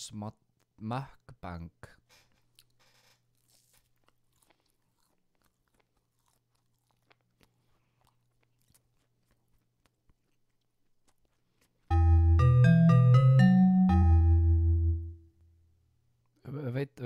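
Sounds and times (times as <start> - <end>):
man chewing: 2.1 - 11.9.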